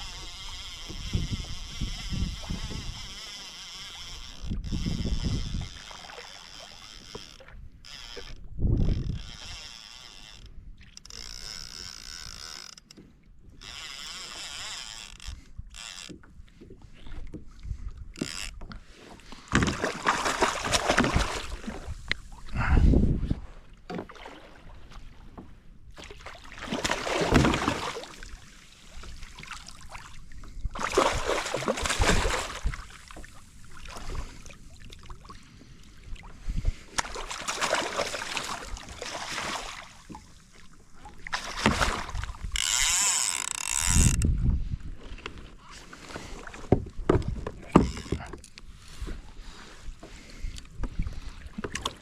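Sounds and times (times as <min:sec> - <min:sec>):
water washing against hull: 0:16.1 - 0:52.0.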